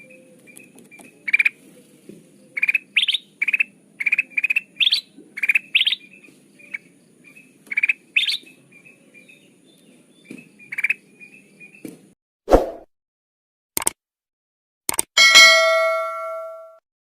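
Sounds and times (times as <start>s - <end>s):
bird chirps: 0.0s - 11.9s
soft bird twittering: 0.0s - 11.9s.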